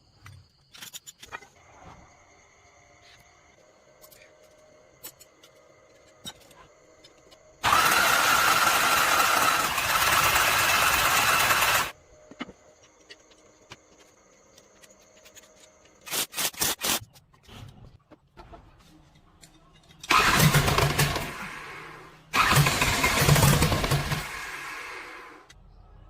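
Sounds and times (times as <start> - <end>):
loud power tool bursts: 7.6 - 12.0, 20.1 - 25.5.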